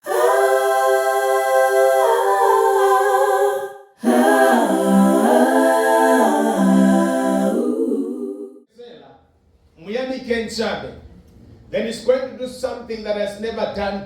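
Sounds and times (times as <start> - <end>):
unaccompanied voices singing: 0.0 - 8.7.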